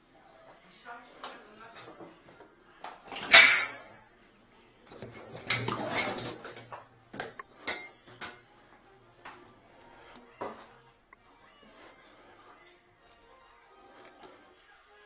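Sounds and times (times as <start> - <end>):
rattling and scraping: 3.1 - 3.8.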